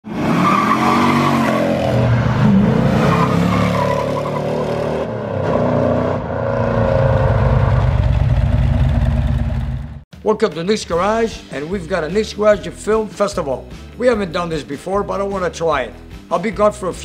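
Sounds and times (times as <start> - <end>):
car engine revving: 0.1 - 10.0.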